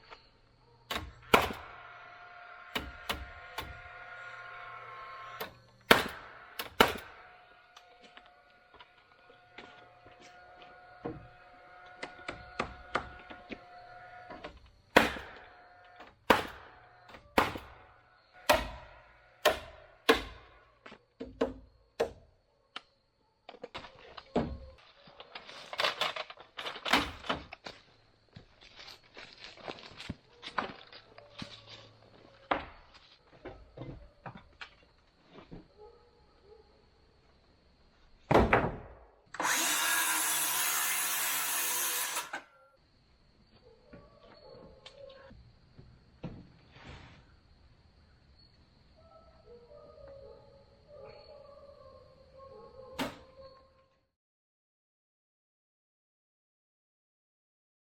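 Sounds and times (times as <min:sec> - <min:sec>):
power tool running on wood: 0:39.4 - 0:42.4.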